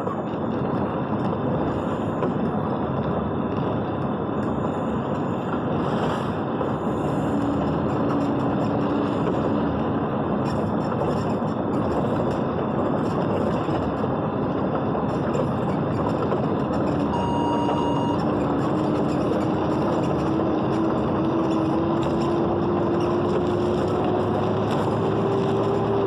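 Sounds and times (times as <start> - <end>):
engine drone: 0.0 - 26.0
rain and wet tyres hissing: 1.6 - 10.4
short electronic beep: 17.1 - 18.3.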